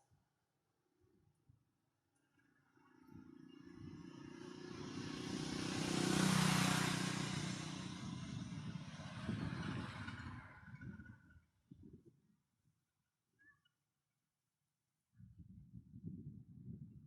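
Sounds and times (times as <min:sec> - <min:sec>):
vehicle driving past: 0:02.7 - 0:11.2.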